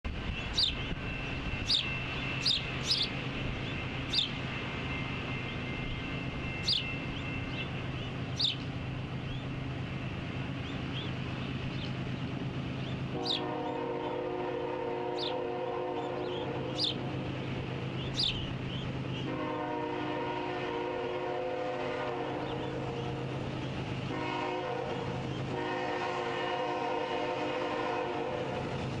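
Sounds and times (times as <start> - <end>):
bird chirping: 0.3 - 4.4, 6.4 - 8.7, 10.6 - 13.4, 16.0 - 17.0, 18.0 - 19.2
locomotive air horn: 13.1 - 16.9, 19.3 - 23.4, 24.1 - 28.8.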